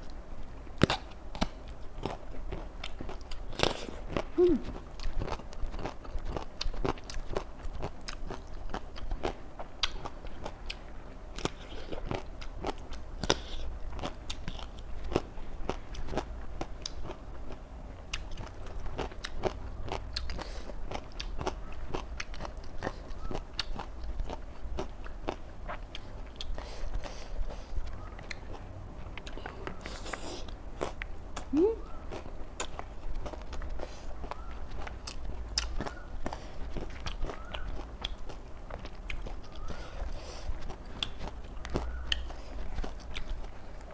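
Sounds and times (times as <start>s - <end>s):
crunchy chewing of raw vegetables: 0.0s - 43.9s.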